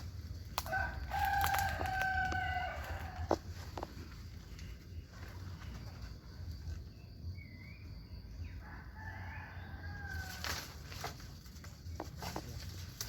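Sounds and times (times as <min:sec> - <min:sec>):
rooster crowing: 0:00.6 - 0:03.5, 0:08.6 - 0:10.6.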